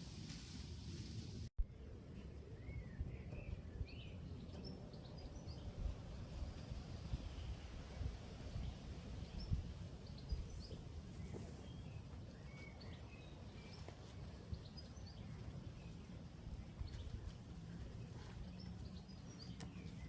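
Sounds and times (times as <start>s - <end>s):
small birds chirping: 16.6s - 20.0s.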